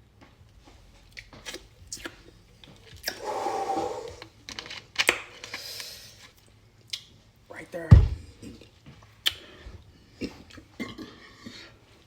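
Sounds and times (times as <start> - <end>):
crunching and chewing food: 1.0 - 3.2.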